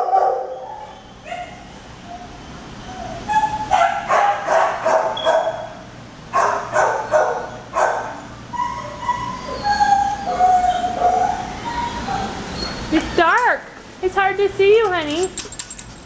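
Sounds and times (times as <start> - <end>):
dogs barking: 0.0 - 2.4, 3.0 - 12.9
dogs yelping and whining: 0.0 - 5.8, 6.4 - 13.1.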